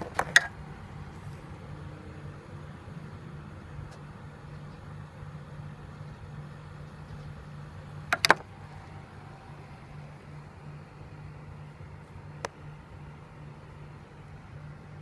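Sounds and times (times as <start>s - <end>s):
sharp clicks: 8.1s - 8.4s.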